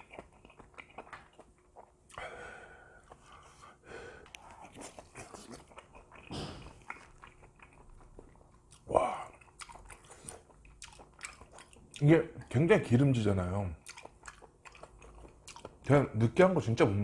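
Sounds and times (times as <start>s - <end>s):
chewing mouth sounds: 0.0s - 2.2s, 4.2s - 12.5s, 13.8s - 15.9s
person breathing: 2.1s - 4.8s.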